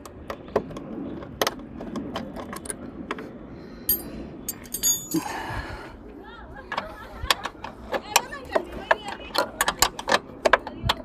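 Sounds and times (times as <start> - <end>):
metal tools clinking: 3.9 - 5.3.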